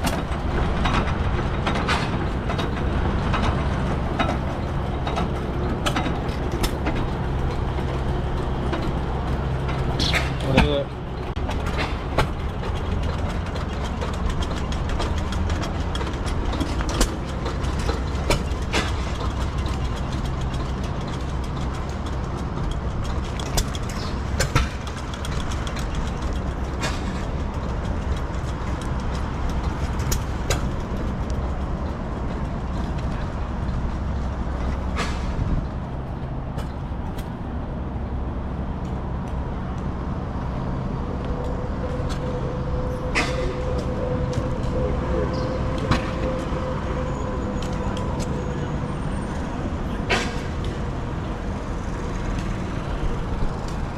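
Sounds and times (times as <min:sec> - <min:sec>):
sharp clicks and knocks: 0:00.0 - 0:37.6
engine idling: 0:00.0 - 0:53.9.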